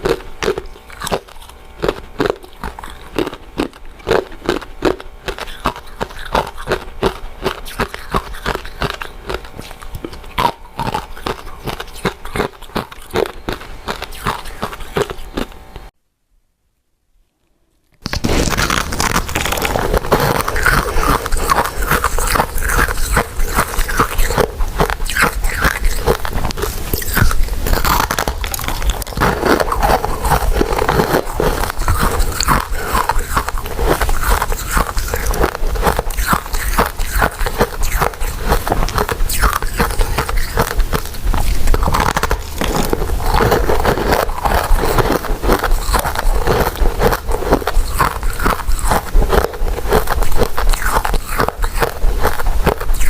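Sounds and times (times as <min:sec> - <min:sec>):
chewing sticky rice cakes: 0:00.0 - 0:15.9, 0:18.0 - 0:53.0.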